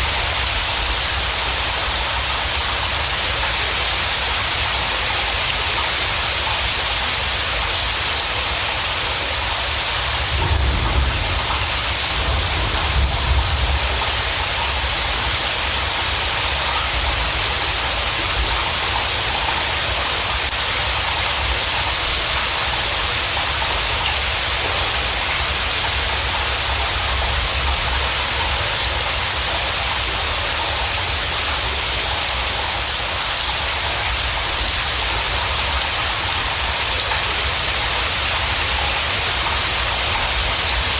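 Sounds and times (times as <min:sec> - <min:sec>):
heavy rain falling: 0:00.0 - 0:40.9
low rumbles: 0:10.1 - 0:15.2.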